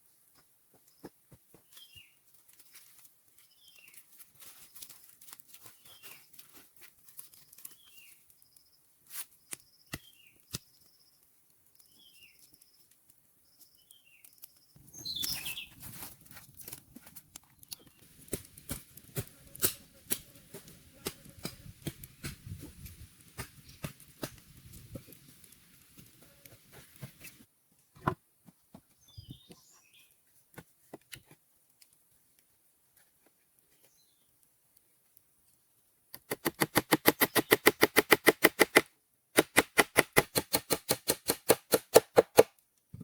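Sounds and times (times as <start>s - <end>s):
sharp clicks and taps: 36.1s - 43.0s.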